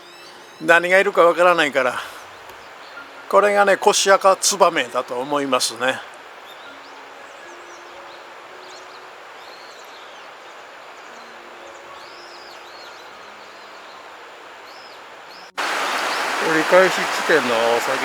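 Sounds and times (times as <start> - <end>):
small birds chirping: 0.0 - 18.0
steady outdoor hiss: 0.0 - 18.0.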